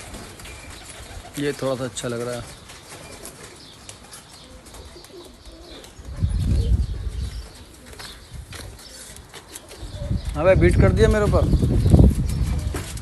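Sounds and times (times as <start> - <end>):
pigeons cooing: 2.5 - 10.4.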